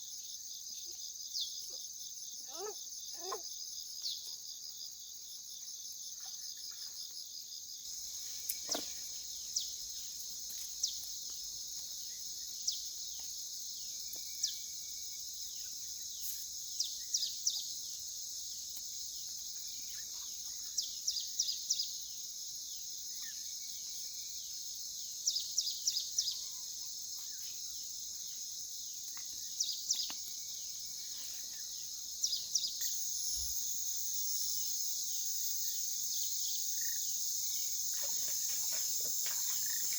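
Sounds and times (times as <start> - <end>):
insect chorus shrilling: 7.8 - 39.9.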